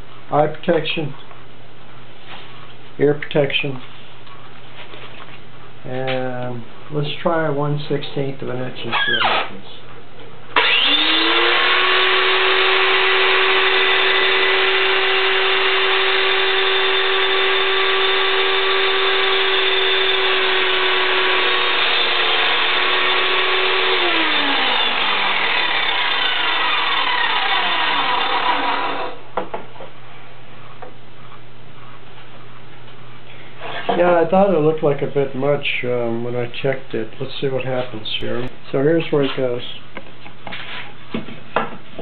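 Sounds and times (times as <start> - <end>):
circular saw cutting wood: 10.6 - 29.2
saw blade winding down: 10.6 - 29.2.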